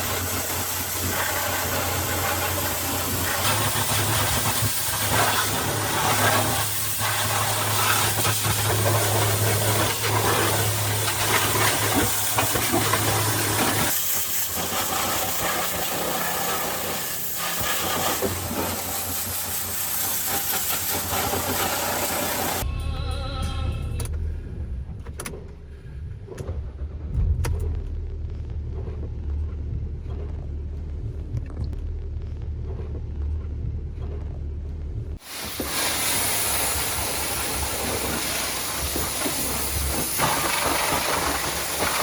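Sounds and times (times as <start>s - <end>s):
pressure washer spraying water: 0.0s - 22.6s, 35.2s - 42.0s.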